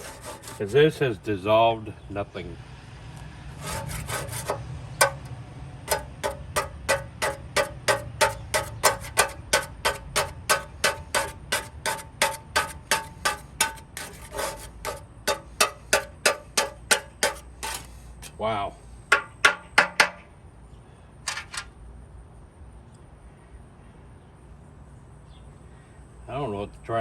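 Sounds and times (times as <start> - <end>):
metal scraper on enamel sink: 0.0 - 1.0, 3.6 - 5.3, 5.9 - 18.4.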